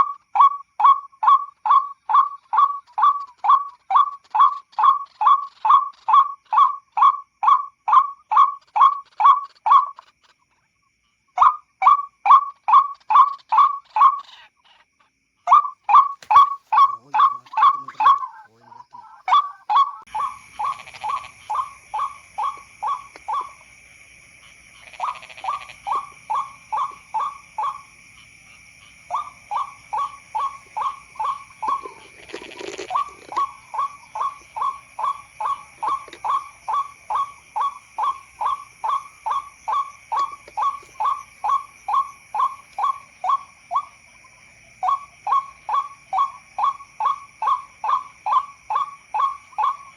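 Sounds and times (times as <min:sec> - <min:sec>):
waterhen calling: 0:15.5 - 0:44.0.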